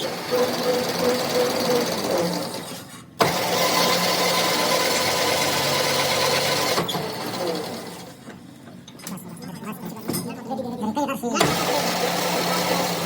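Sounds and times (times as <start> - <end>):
power tool whining: 0.0 - 8.1, 11.4 - 13.0.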